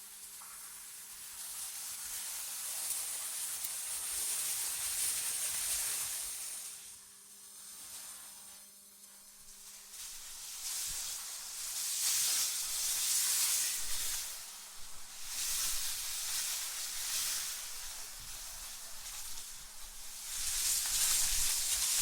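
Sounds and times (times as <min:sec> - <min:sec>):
wind hissing in gusts: 0:09.4 - 0:22.0.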